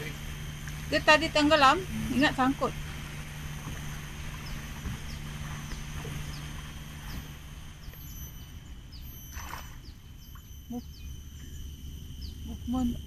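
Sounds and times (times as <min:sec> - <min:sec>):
low engine hum: 0:00.0 - 0:13.0
bird chirping: 0:04.1 - 0:13.0.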